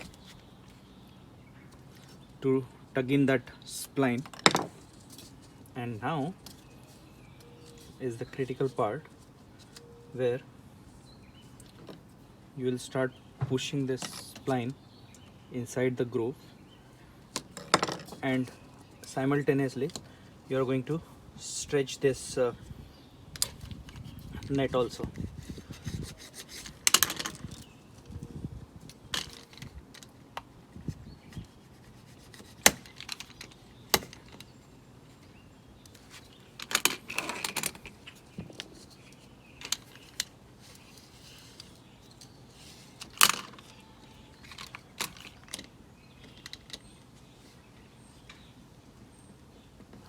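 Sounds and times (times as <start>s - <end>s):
spline clicks and scraping rustles: 3.9s - 9.9s, 23.3s - 28.2s, 28.8s - 48.5s.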